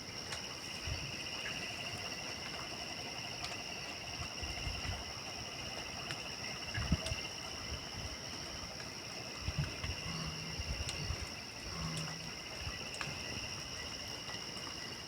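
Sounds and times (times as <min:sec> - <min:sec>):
crickets chirring: 0:00.0 - 0:15.0
faint clicks: 0:11.7 - 0:12.3.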